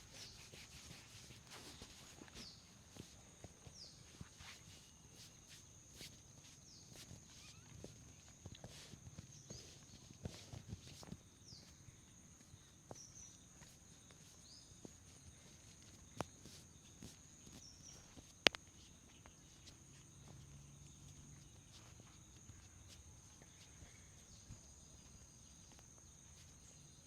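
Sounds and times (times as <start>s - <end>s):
hands rubbing hair: 0.0s - 3.1s.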